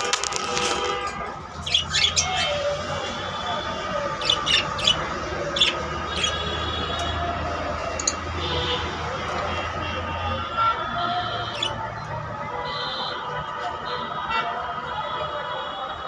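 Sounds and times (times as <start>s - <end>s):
cockatiel squawking: 1.6s - 2.6s, 4.2s - 5.0s, 5.6s - 6.4s.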